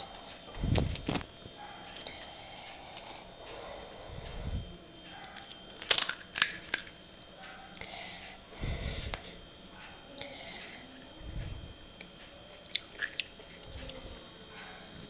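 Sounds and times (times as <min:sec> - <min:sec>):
crisp shells cracking: 0:00.7 - 0:02.2, 0:05.2 - 0:07.0, 0:12.8 - 0:13.3
soft low thumps: 0:11.2 - 0:11.9.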